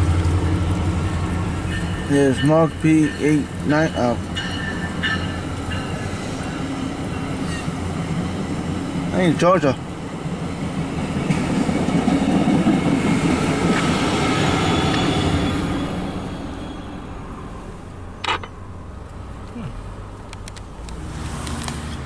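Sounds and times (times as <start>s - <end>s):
train wheels rumbling: 0.0s - 18.9s
faint high squeal: 14.4s - 17.1s
sharp click: 18.2s - 18.6s.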